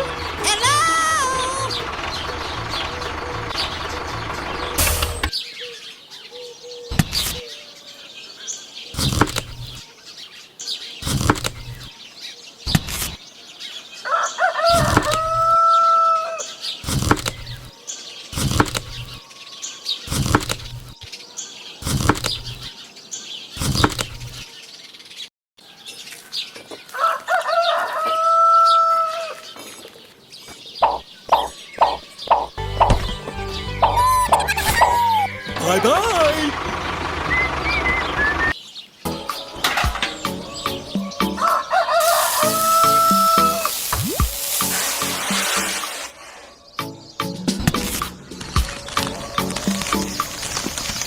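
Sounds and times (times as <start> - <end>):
bird calls: 0.0 - 51.0
bird wings flapping: 47.8 - 51.0.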